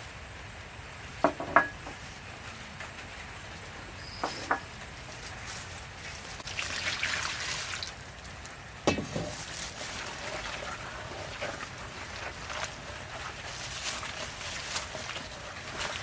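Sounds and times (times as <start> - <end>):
cooking hiss: 0.0 - 16.0
steady low background hum: 0.0 - 16.0
sharp knocks: 8.9 - 9.3.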